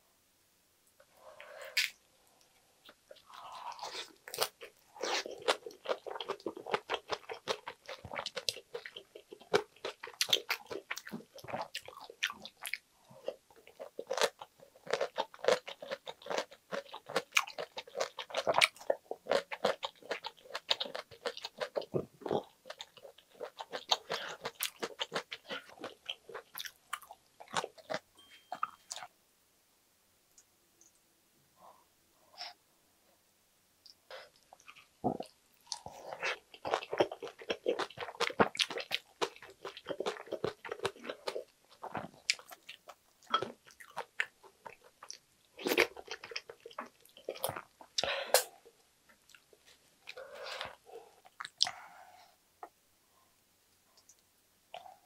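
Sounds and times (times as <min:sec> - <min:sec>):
crunching and wet chewing: 0:02.8 - 0:28.0, 0:34.2 - 0:48.5.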